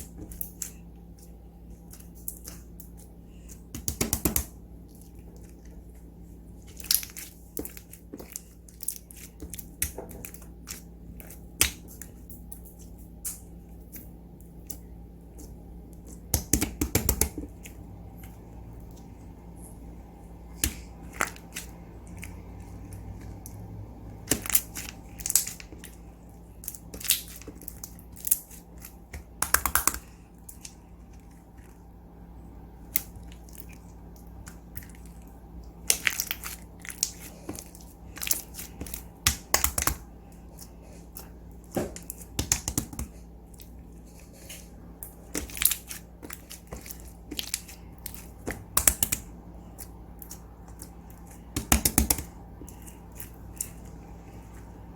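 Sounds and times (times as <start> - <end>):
slime clicking and popping: 29.2 - 30.1, 47.3 - 49.3.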